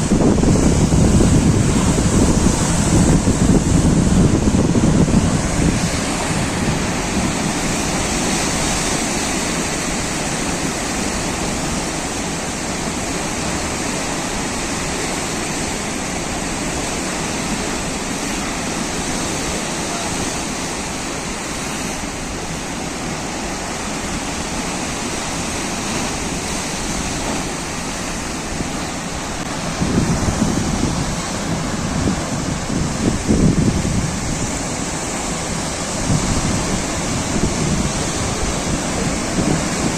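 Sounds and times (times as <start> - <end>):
sea surf washing: 0.0 - 39.9.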